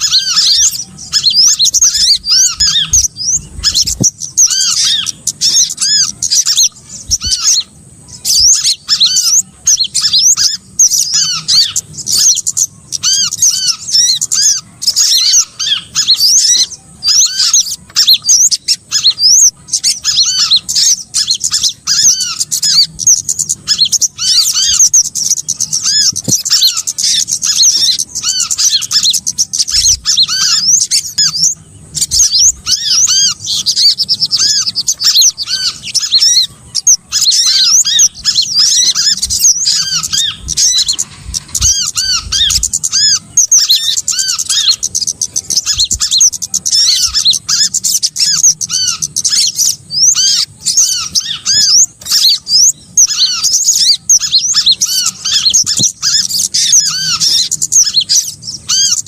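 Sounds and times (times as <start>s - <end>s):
small birds chirping and trilling: 0.0s - 59.0s.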